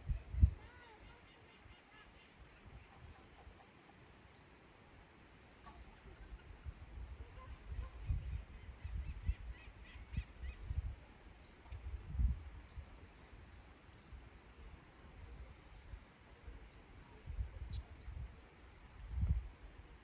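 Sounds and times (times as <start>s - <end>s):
wind gusts on microphone: 0.0s - 0.8s, 6.2s - 11.1s, 11.8s - 13.1s, 17.1s - 19.9s
steady high hiss: 0.0s - 20.0s
faint bird chirps: 0.1s - 11.8s, 12.6s - 14.2s, 15.4s - 16.0s, 17.0s - 18.8s.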